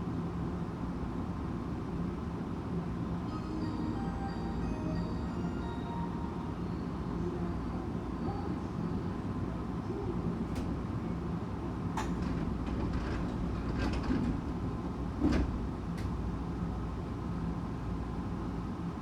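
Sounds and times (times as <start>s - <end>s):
train hum: 0.0s - 19.0s
train wheels rumbling on rails: 11.8s - 17.6s
train car body rattling: 11.9s - 16.4s.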